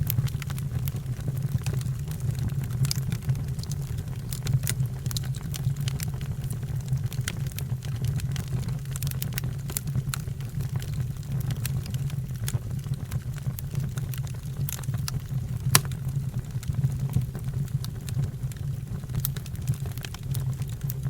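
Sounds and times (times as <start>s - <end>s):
fire crackling: 13.8s - 16.2s.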